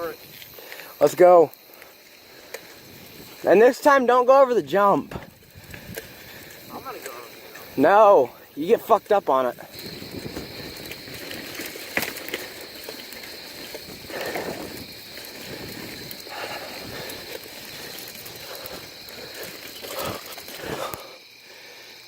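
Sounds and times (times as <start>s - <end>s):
bicycle tyres crunching on dirt: 0.0s - 22.0s
rustling: 9.6s - 21.1s
bike clicks and knocks: 9.7s - 21.0s.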